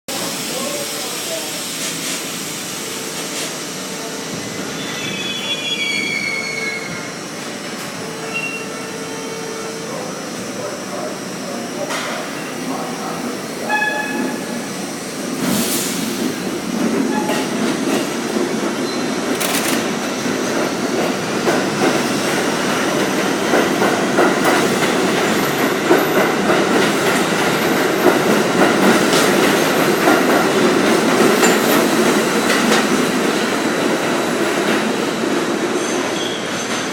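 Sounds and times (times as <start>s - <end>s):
subway train rumble: 0.1s - 36.9s
wheel squeal: 4.8s - 7.2s, 8.2s - 8.8s, 35.8s - 36.9s.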